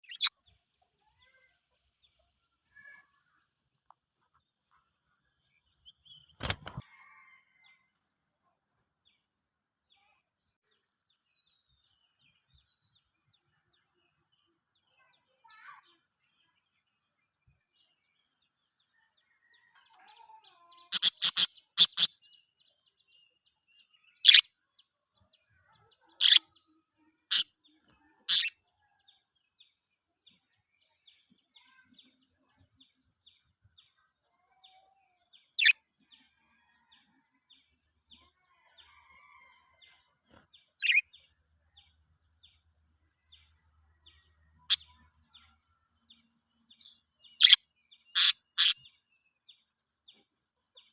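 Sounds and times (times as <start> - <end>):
budgerigars chirping: 0.0 - 0.3, 21.0 - 22.1, 28.3 - 28.5, 47.4 - 48.8
soft bird chatter: 0.0 - 50.9.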